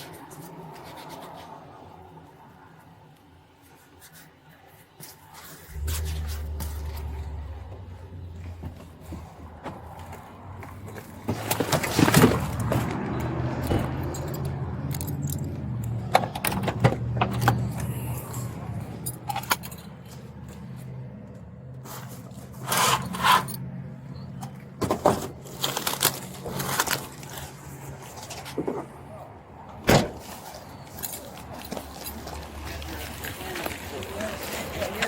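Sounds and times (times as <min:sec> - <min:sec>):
metal jangling and scraping: 0:10.8 - 0:21.0, 0:21.8 - 0:24.4, 0:30.1 - 0:33.1.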